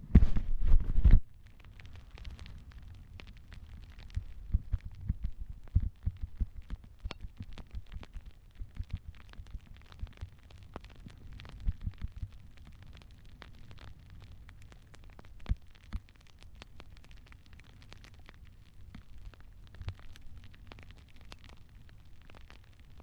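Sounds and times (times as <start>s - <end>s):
wind buffeting camera: 0.0s - 1.2s, 4.0s - 9.1s.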